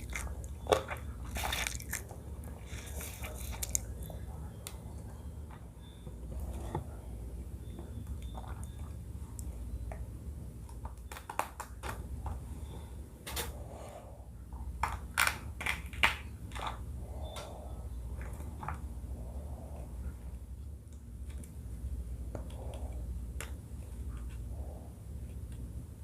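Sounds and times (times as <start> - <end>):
crisp crunching and chewing: 0.0 - 4.2
steady low hum: 0.0 - 26.0.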